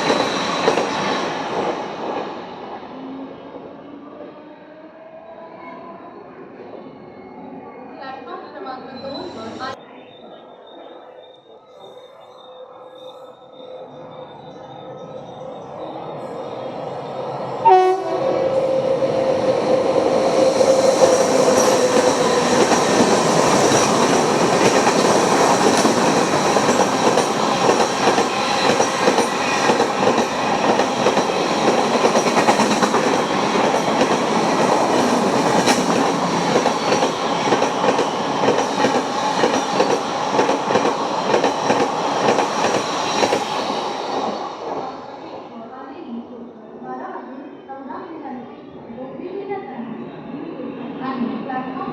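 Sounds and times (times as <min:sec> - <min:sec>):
train horn: 0:17.6 - 0:18.9
train wheels clattering: 0:20.2 - 0:44.8.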